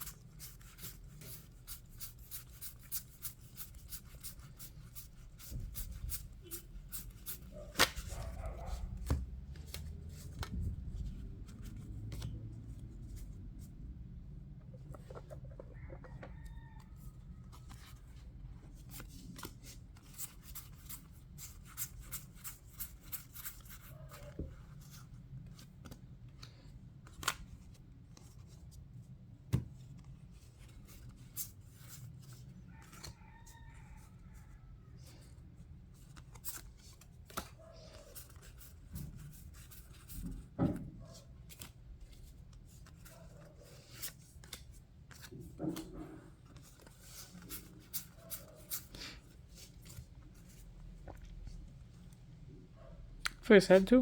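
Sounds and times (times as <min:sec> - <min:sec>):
trading cards clicking and flicking: 0:07.7 - 0:08.2.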